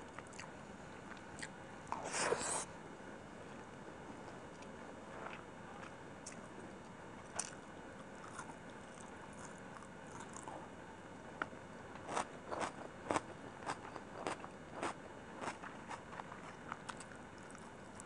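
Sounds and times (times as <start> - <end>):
person chewing food: 0.1 - 0.5, 4.6 - 6.4, 8.2 - 10.6, 12.1 - 18.0.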